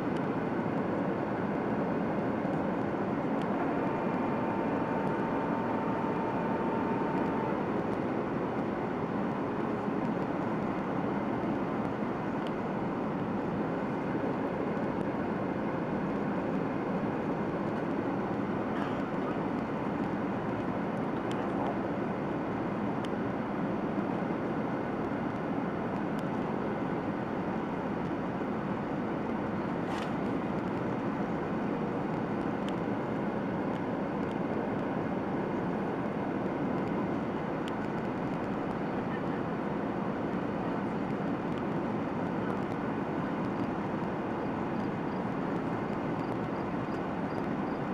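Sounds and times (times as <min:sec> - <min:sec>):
faint steady tone: 0:00.0 - 0:10.0
airplane cabin roar: 0:00.0 - 0:47.9.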